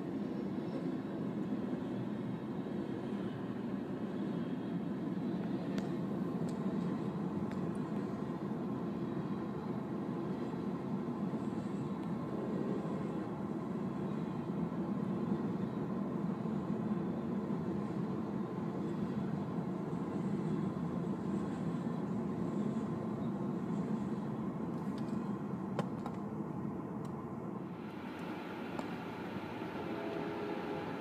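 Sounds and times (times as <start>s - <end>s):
muffled freight train rumble: 27.6s - 31.0s.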